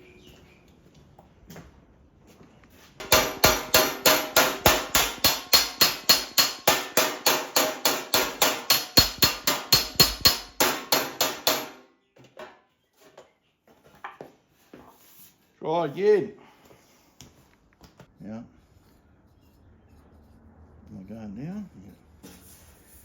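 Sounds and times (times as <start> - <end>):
hammer beating steel sheet: 3.0 - 11.9.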